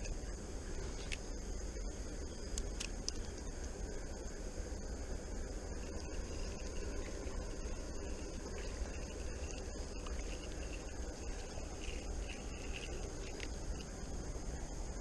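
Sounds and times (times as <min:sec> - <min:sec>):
high insect buzz: 0:00.0 - 0:15.0
steady low rumble: 0:00.0 - 0:15.0.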